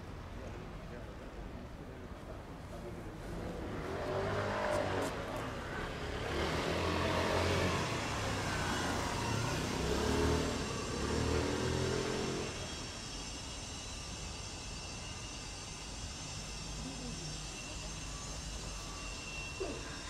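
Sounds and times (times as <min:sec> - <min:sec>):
background traffic hum: 0:00.0 - 0:20.0
vehicle engine revving and passing: 0:03.2 - 0:12.8.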